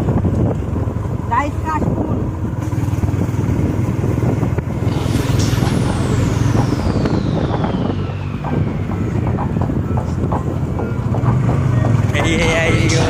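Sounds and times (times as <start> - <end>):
high tone sliding down: 4.6 - 13.0.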